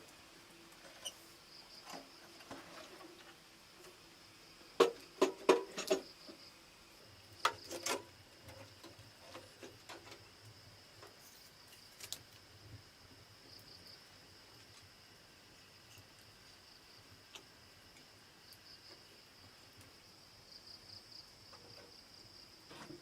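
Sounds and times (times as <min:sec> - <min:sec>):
jungle insects buzzing: 0:00.7 - 0:23.0
faint ticks: 0:17.3 - 0:20.0.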